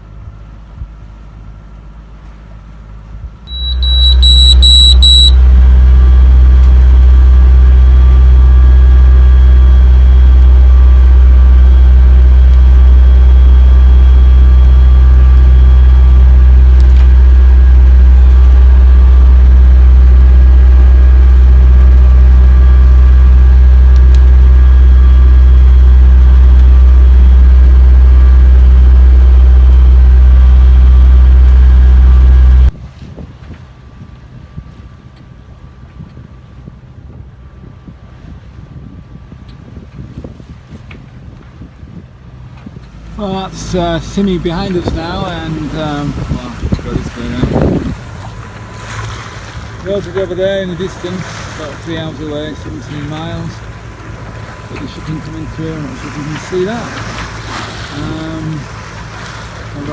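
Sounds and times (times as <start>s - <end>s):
boat engine humming: 0.0s - 59.9s
high beeps: 3.5s - 5.4s.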